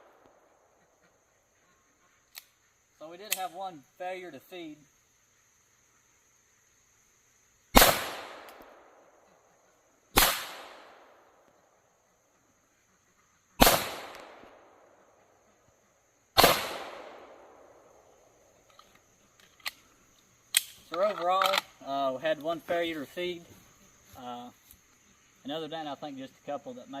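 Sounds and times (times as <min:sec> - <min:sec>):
pistol shots with echo: 0:07.8 - 0:09.0, 0:10.2 - 0:11.2, 0:13.6 - 0:14.8, 0:16.4 - 0:17.8.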